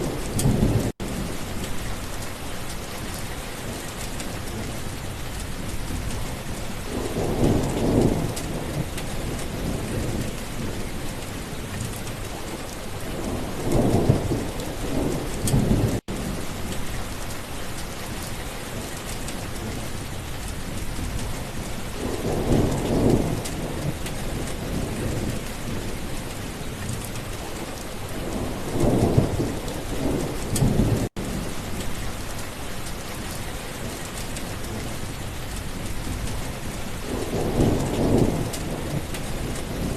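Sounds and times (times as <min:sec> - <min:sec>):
steady rain: 0:00.0 - 0:39.9
thunder rolling: 0:37.1 - 0:39.9.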